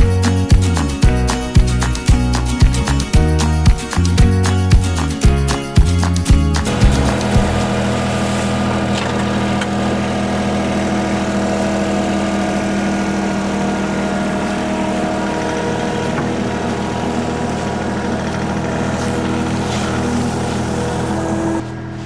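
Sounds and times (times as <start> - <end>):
heavy machine engine running: 6.7 - 22.0.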